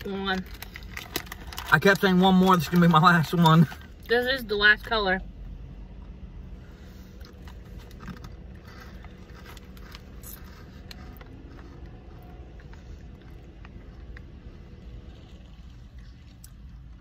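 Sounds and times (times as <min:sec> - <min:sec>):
low steady hum: 0:00.0 - 0:17.0
chewing crunchy candy: 0:00.3 - 0:03.9, 0:07.2 - 0:17.0.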